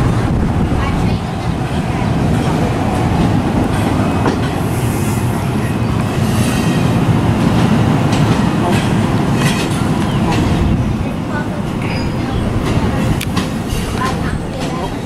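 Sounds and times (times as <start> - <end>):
train wheels rumbling on rails: 0.0 - 15.0
clatter over rail joints: 7.4 - 15.0.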